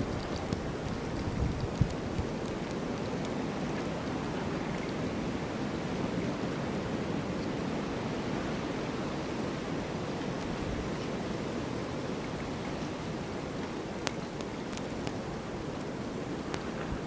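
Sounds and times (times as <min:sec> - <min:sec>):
faint ticks: 0:00.0 - 0:03.9, 0:13.6 - 0:15.9, 0:16.5 - 0:17.0.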